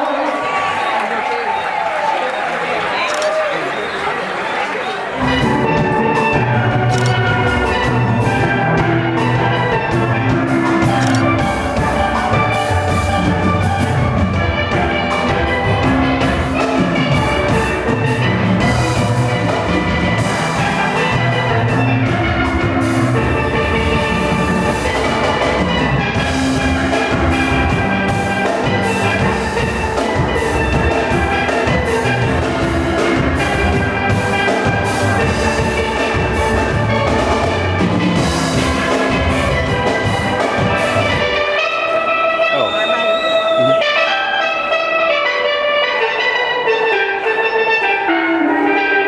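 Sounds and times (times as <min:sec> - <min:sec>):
steady drum kit beat: 0:05.2 - 0:44.1
steelpans playing melody: 0:05.2 - 0:49.0
bass line: 0:42.2 - 0:44.0.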